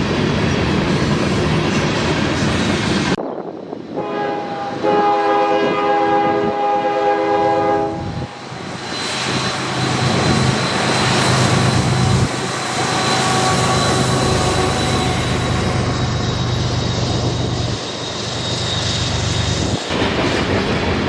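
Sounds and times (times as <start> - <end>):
train wheels rumbling on rail: 0.0 - 21.0
locomotive air horn blast: 4.0 - 8.4
high-pitched wheel whine: 7.9 - 20.6.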